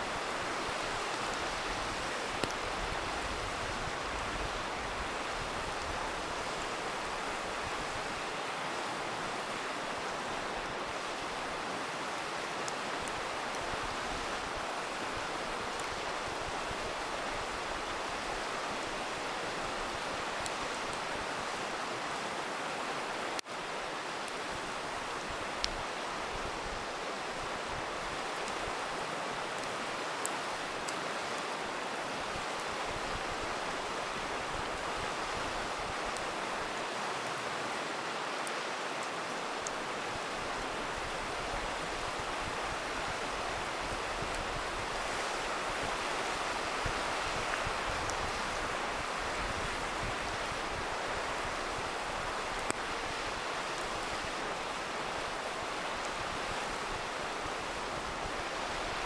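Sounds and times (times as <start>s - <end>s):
river rushing: 0.0s - 59.0s
faint campfire pops: 2.3s - 2.7s.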